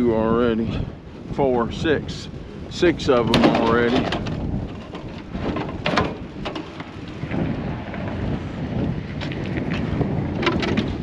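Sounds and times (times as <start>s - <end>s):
wind buffeting microphone: 0.0s - 11.0s
light knocks and clatters: 3.3s - 6.9s.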